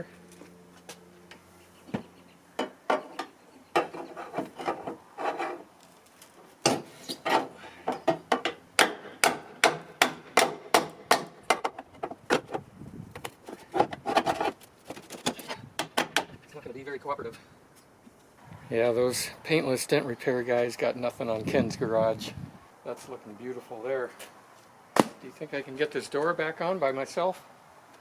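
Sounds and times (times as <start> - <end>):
scraping on sheet metal: 3.8 - 5.7
hammer blows on car fender: 8.1 - 11.7.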